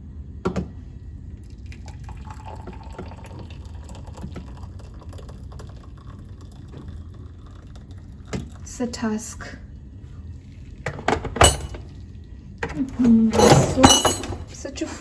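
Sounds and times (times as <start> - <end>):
small drips and splashes: 1.4 - 8.7
water trickling into container: 1.4 - 8.7.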